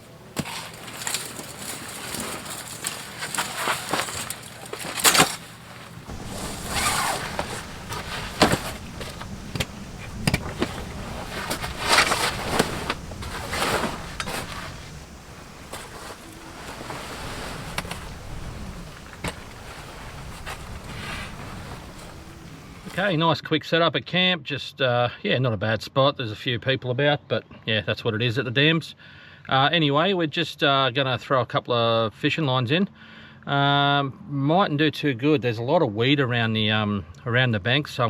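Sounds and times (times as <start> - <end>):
camping gear knocks and clicks: 0.0 - 23.1
rustling swishes of gear: 0.0 - 23.1.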